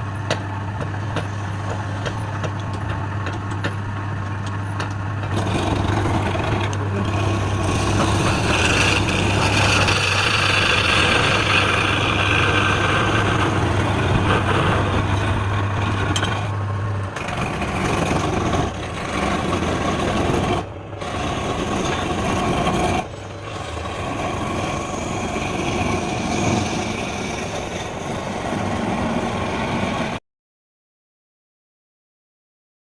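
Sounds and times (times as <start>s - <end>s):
electric power tool cutting wood: 5.2s - 16.5s, 17.2s - 29.6s.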